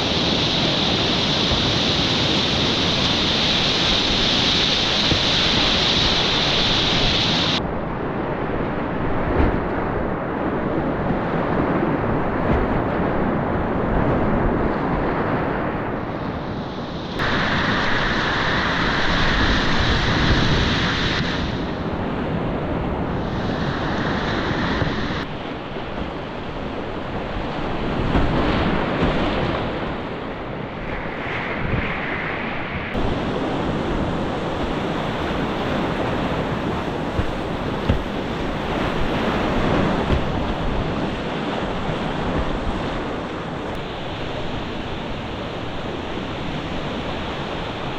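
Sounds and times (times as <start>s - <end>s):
rushing whitewater: 0.0s - 7.6s, 8.5s - 30.7s, 32.9s - 47.9s
wind buffeting microphone: 0.0s - 47.9s.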